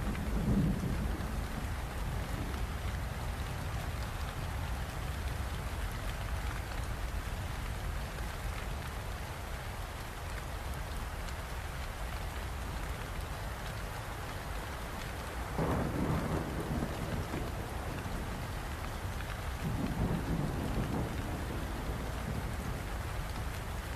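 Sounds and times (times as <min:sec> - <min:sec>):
steady rain: 0:00.0 - 0:23.9
thunder rumble: 0:15.6 - 0:18.6, 0:19.5 - 0:23.9.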